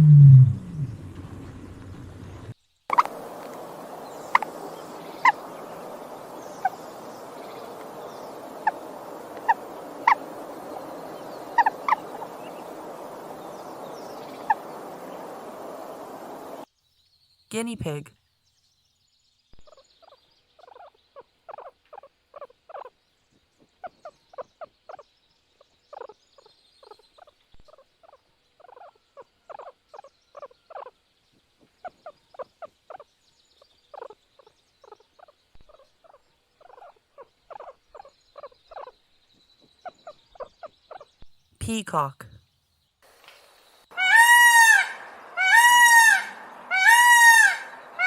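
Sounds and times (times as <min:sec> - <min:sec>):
guinea pig squeaking: 0:19.7 - 0:22.9, 0:25.9 - 0:28.9.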